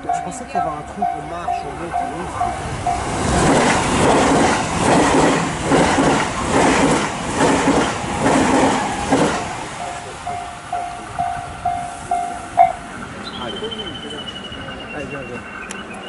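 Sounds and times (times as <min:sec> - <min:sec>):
level-crossing warning bell dinging: 0:00.0 - 0:03.4, 0:08.0 - 0:16.0
train wheels clattering over rail joints: 0:02.9 - 0:09.6.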